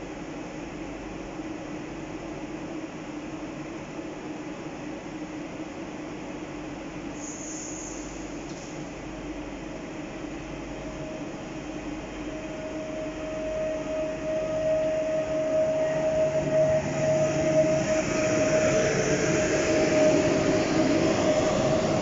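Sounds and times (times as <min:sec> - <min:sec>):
train carriages rumbling on rails: 0:12.5 - 0:22.0.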